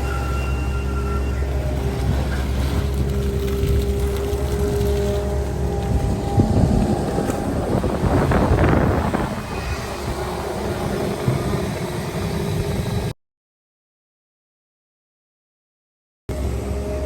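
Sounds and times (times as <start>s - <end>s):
excavator diesel engine under load: 0.0s - 13.1s, 16.3s - 17.0s
hydraulics working: 0.0s - 13.1s.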